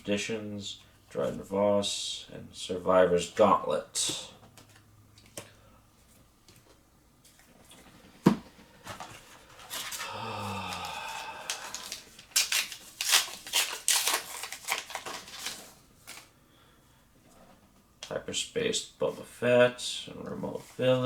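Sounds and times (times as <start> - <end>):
wrapper and cards crackling: 9.7 - 16.3
wrapper tearing: 9.8 - 16.3.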